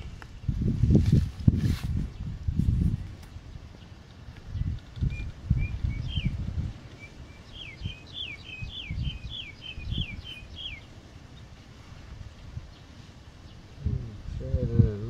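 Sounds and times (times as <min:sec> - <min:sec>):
low thuds and rustling: 0:00.0 - 0:03.4
songbird whistling: 0:04.6 - 0:10.9.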